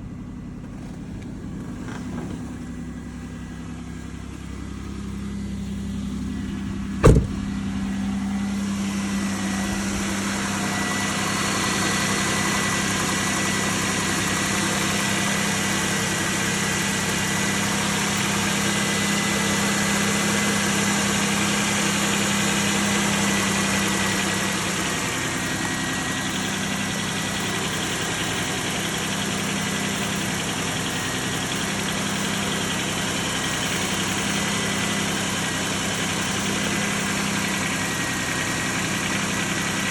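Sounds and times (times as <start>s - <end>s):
faint steady whine: 0.0s - 15.1s
car engine idling: 0.0s - 39.9s.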